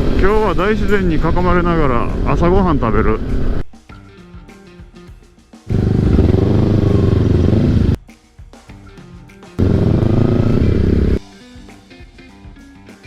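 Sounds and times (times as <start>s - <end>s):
motorcycle engine revving: 0.0s - 0.9s, 5.7s - 8.0s, 9.6s - 11.2s.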